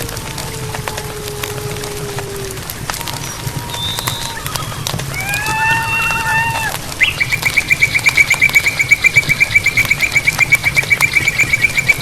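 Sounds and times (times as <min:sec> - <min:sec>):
wavering animal call: 0:00.0 - 0:12.0
animal trilling call: 0:07.0 - 0:12.0.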